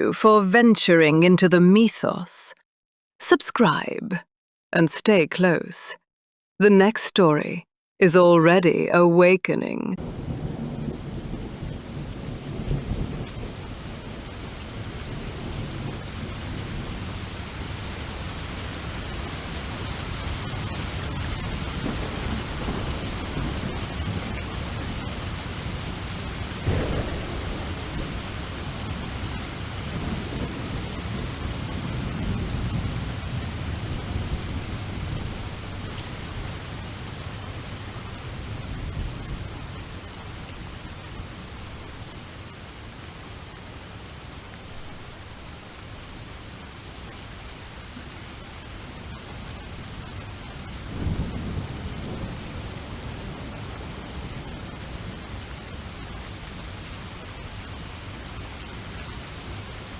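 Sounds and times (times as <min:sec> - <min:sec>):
sharp thunderclap: 0:10.0 - 0:17.0, 0:26.4 - 0:35.2
rolling low thunder: 0:10.0 - 0:17.2, 0:21.1 - 0:35.8, 0:50.9 - 0:53.6
steady rain: 0:10.0 - 0:59.9.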